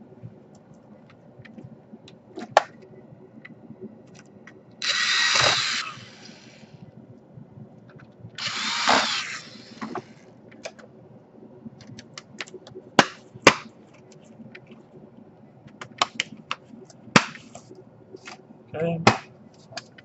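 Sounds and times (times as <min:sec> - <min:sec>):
electric screwdriver whirring: 0:04.8 - 0:06.7, 0:08.4 - 0:10.2.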